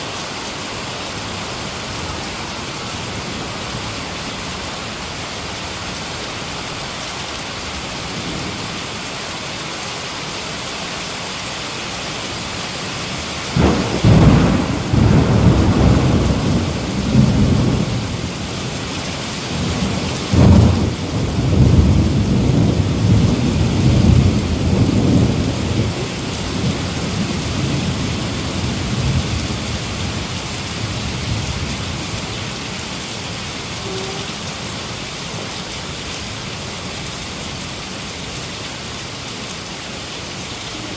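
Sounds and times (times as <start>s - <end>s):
heavy rain falling: 0.0s - 40.9s
thunder rumbling: 13.5s - 32.6s.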